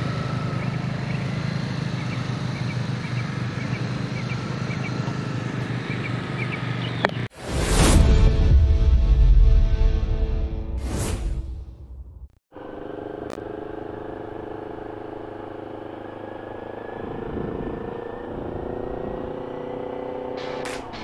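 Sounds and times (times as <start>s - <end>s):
motorcycle engine at low revs: 0.0s - 7.3s, 12.5s - 21.0s
single click: 20.4s - 21.0s.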